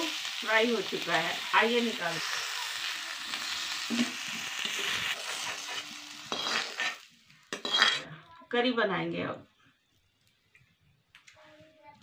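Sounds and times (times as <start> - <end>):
potatoes sizzling in oil: 0.0 - 8.0
metal ladle scraping: 4.6 - 8.1.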